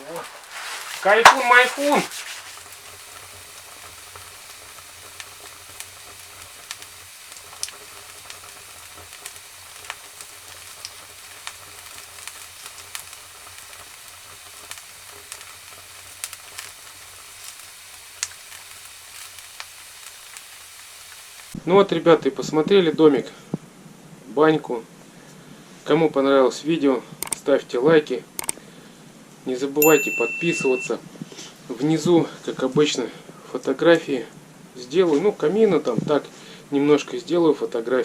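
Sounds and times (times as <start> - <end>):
wood fire crackling: 0.0 - 21.6.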